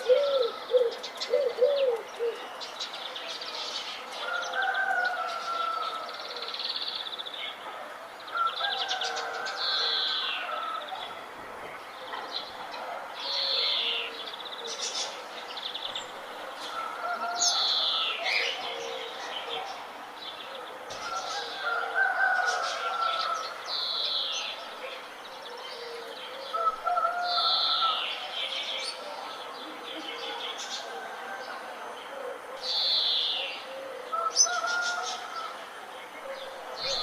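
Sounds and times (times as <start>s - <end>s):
birds warbling: 0.0s - 2.7s, 31.5s - 37.0s.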